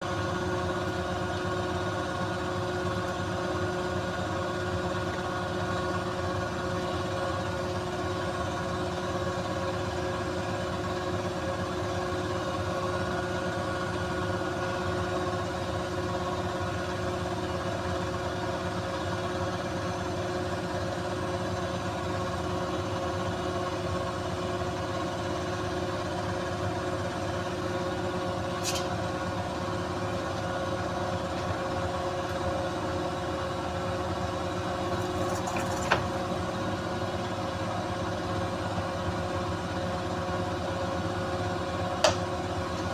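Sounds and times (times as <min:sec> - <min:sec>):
washing machine spinning: 0:24.4 - 0:42.9.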